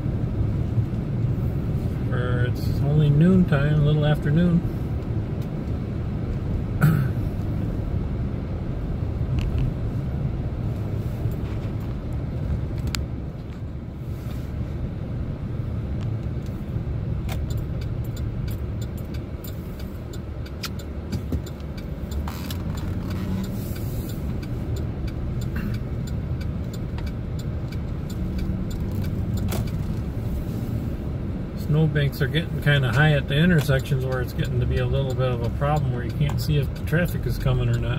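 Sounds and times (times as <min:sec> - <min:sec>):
engine and tyre rumble: 0:00.0 - 0:37.9
light clicks and ticks: 0:11.3 - 0:13.7, 0:16.0 - 0:30.4, 0:31.7 - 0:37.9.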